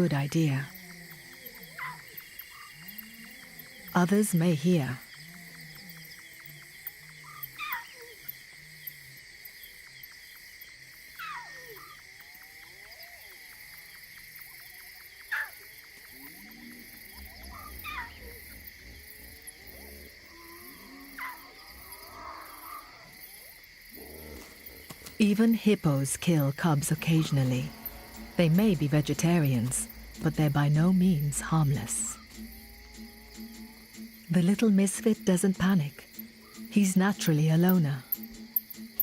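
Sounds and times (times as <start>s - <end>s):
night insect chorus: 0.0s - 39.0s
lion cub crying: 17.2s - 19.8s.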